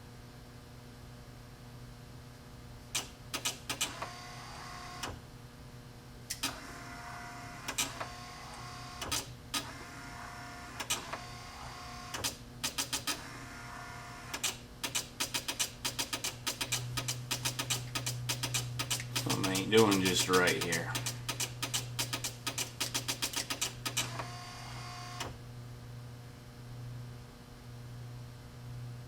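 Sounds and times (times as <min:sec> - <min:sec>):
relays clicking: 0:14.3 - 0:24.1.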